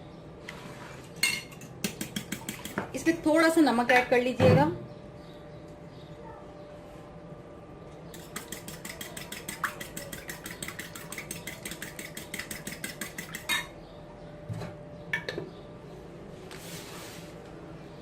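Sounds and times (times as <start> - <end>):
utensil beating eggs in bowl: 1.8 - 3.0, 8.1 - 13.7.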